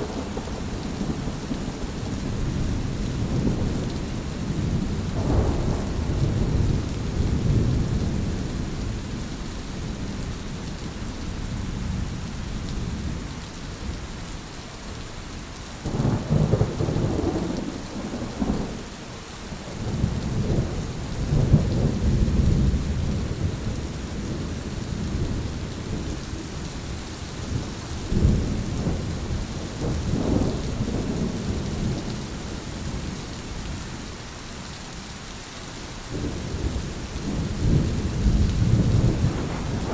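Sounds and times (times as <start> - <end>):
rolling thunder: 0.0 - 10.3, 15.9 - 33.7, 36.1 - 39.9
steady rain: 0.0 - 39.9.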